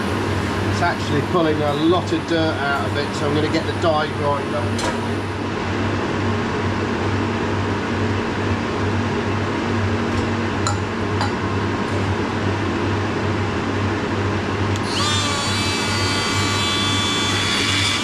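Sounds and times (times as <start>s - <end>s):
workshop machinery hum: 0.0s - 18.0s
die grinder whine: 14.7s - 18.0s.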